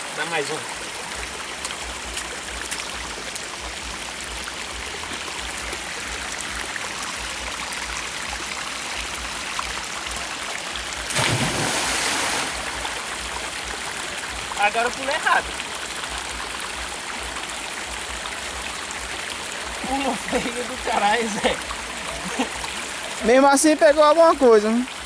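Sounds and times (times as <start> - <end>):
waterfall pouring into pool: 0.0 - 25.0
person splashing into water: 11.1 - 12.8.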